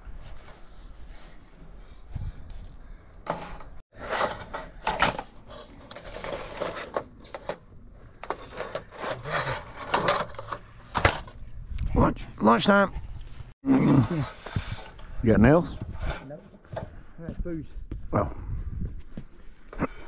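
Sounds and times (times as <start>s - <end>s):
wood scraping and rubbing: 3.2s - 11.4s.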